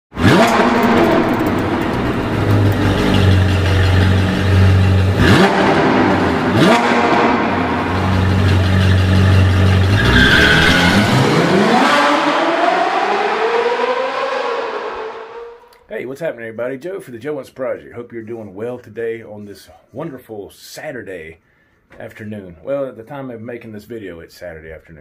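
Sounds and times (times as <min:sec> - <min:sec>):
sports car engine revving: 0:00.1 - 0:15.6.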